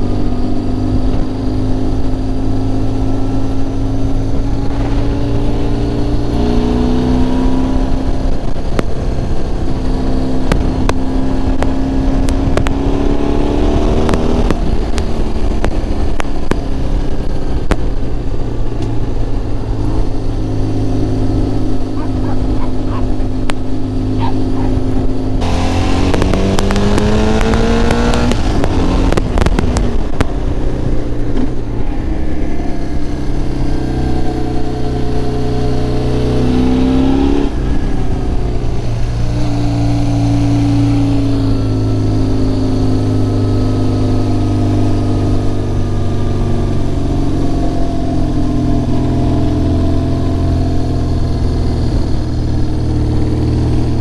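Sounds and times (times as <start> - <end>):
motorcycle engine accelerating: 0.0 - 54.0
wind buffeting microphone: 0.8 - 39.5.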